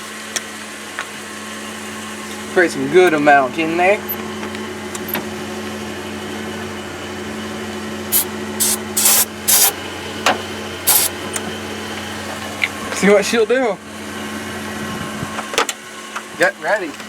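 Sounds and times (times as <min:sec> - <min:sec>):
steady engine hum: 0:00.0 - 0:17.0
aerosol can spraying: 0:08.1 - 0:09.7, 0:10.9 - 0:11.1.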